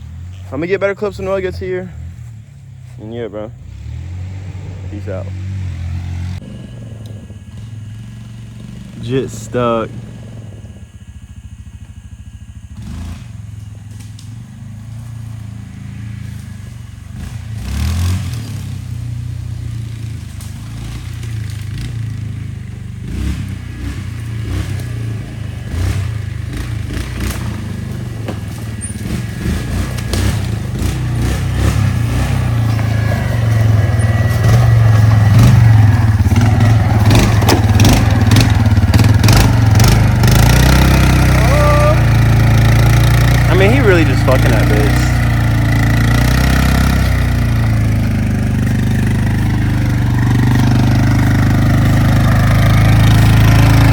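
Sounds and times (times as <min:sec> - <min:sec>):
off-road vehicle engine running: 0:00.0 - 0:53.9
vehicle rattles and knocks: 0:23.1 - 0:53.9.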